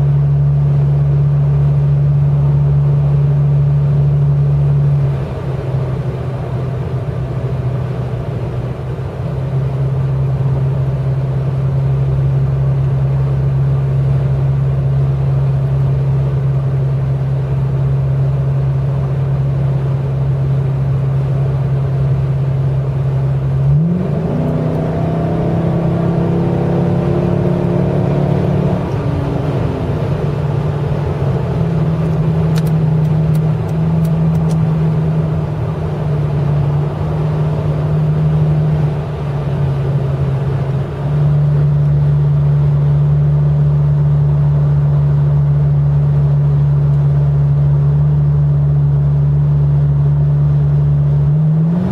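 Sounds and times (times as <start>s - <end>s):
car exhaust drone: 0.0s - 51.9s.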